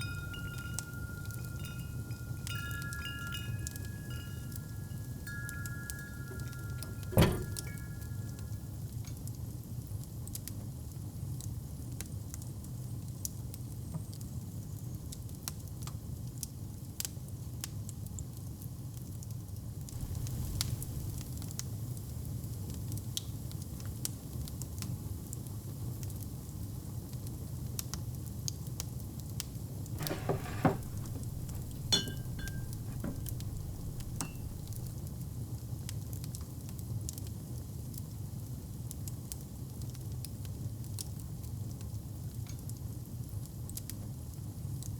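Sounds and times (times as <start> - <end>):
metal clinks with ringing: 0.0 - 8.4, 20.0 - 21.3, 30.0 - 35.0
wood fire crackling: 20.0 - 21.6, 30.0 - 35.1.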